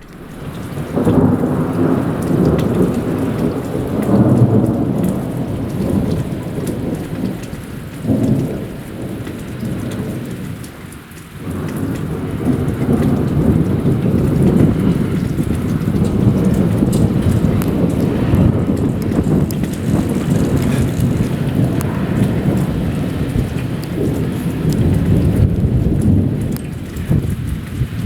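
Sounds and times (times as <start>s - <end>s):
heavy rain: 0.0s - 28.0s
rolling thunder: 0.0s - 28.0s.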